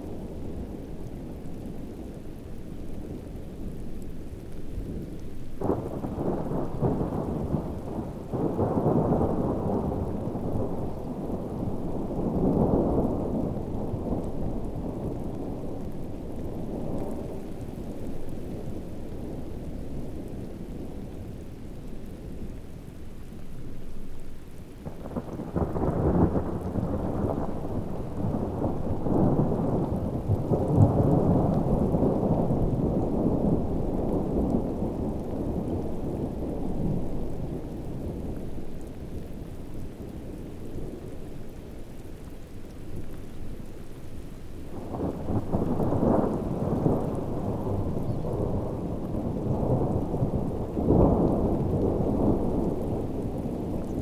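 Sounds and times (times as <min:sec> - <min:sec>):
heavy rain: 0:00.0 - 0:54.0
rolling thunder: 0:24.8 - 0:38.7, 0:44.8 - 0:54.0.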